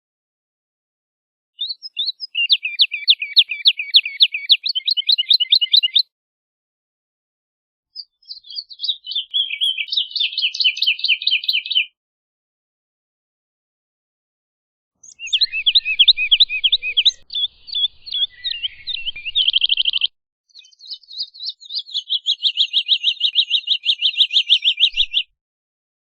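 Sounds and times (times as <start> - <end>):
lark singing: 1.6 - 6.1, 8.0 - 12.0, 15.0 - 25.3.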